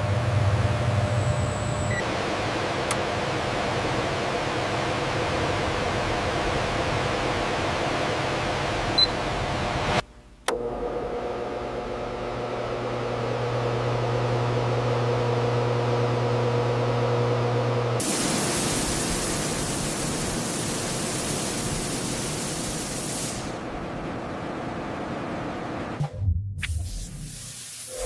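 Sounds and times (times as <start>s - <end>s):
machine hum with low drone: 0.0s - 21.8s
loud hiss of rushing air: 18.0s - 23.7s, 26.9s - 28.0s.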